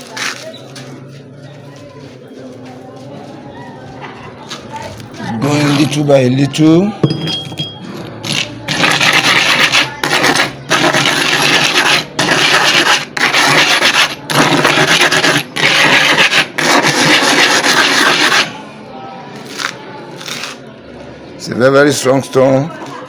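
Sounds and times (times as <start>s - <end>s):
stone scraping on cement floor: 4.4s - 6.1s, 7.0s - 18.5s, 19.4s - 20.6s.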